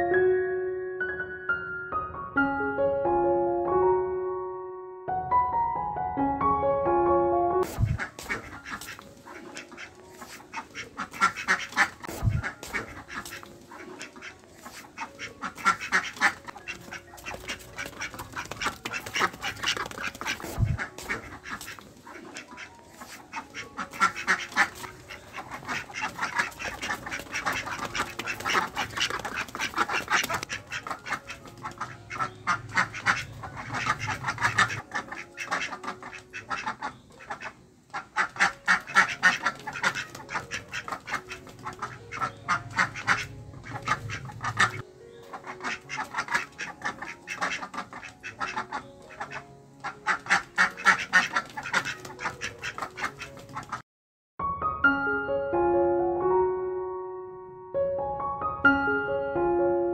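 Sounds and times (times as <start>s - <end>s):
ducks quacking: 7.6s - 53.8s.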